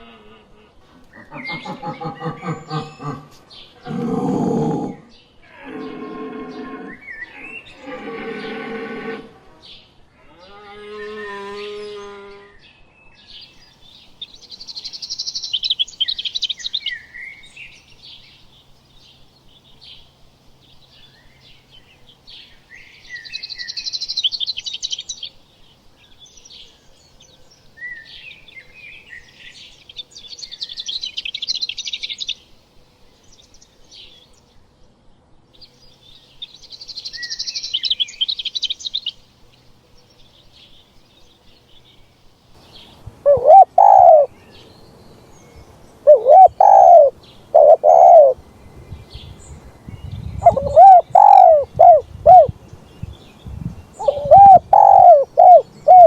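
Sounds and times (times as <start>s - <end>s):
farm animal wavering call: 0.9s - 9.5s, 43.2s - 44.3s, 46.1s - 48.4s, 50.4s - 52.5s, 54.0s - 56.0s
songbird rapid high chirps: 35.7s - 56.0s.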